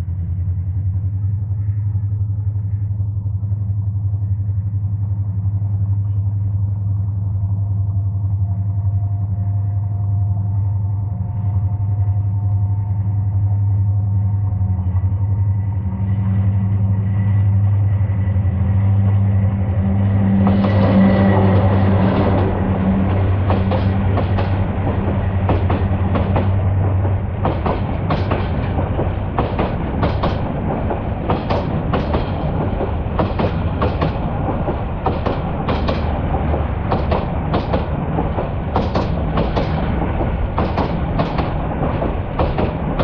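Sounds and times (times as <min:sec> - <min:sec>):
locomotive engine humming: 0:00.0 - 0:43.0
wheels clicking over rail joints: 0:20.4 - 0:43.0.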